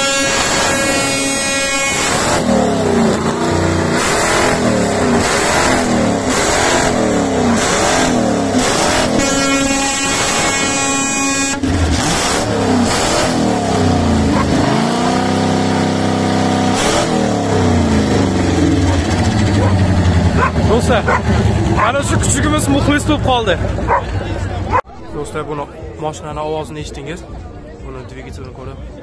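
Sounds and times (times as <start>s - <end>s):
car horn: 0.0s - 13.3s
car engine revving: 0.0s - 24.8s.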